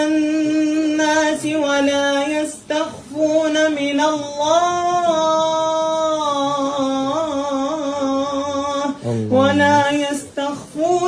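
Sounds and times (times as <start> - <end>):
person chanting melodically: 9.0 - 10.1.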